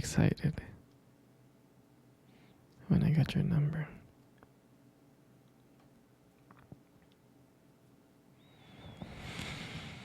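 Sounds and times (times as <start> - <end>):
breath on microphone: 8.8 - 10.0.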